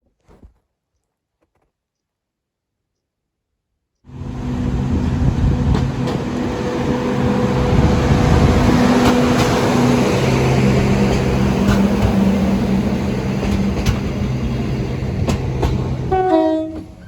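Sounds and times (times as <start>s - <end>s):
vehicle engine humming: 4.1s - 16.3s.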